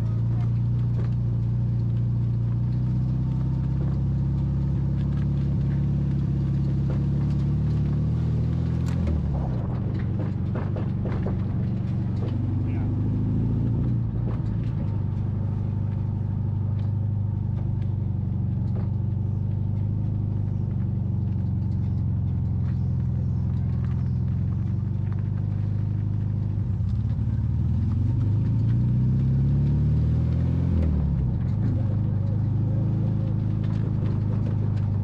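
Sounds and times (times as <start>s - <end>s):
car engine running and revving: 0.0s - 35.0s.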